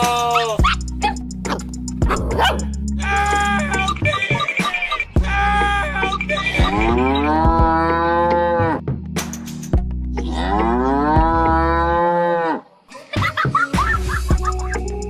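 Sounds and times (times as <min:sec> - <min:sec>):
background music: 0:00.0 - 0:15.0
cow mooing: 0:06.6 - 0:08.8, 0:10.2 - 0:12.6.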